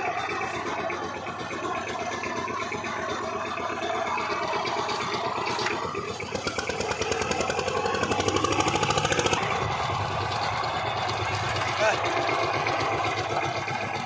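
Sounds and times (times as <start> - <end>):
power tiller engine pulsing: 0.0 - 14.0.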